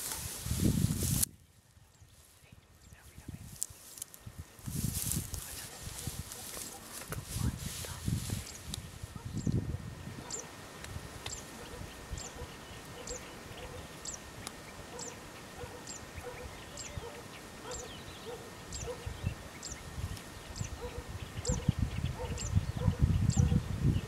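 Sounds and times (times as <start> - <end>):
low gusty rumble: 4.2 - 14.0, 18.8 - 24.0.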